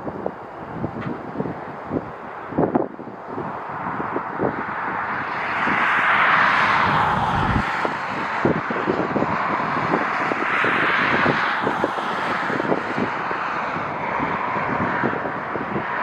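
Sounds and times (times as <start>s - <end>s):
wind buffeting microphone: 0.0s - 16.0s
jet engine rush: 5.0s - 14.5s.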